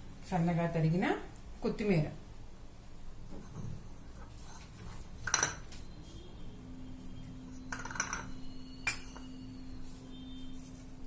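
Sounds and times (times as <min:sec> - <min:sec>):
utensil clinking against bowl: 0:07.7 - 0:09.4.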